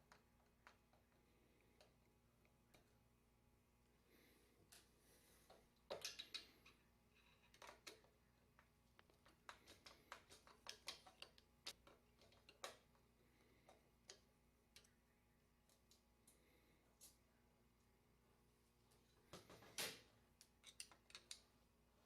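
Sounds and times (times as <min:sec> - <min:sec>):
screwdriver and metal parts clicking: 0:09.0 - 0:12.9, 0:20.4 - 0:21.5.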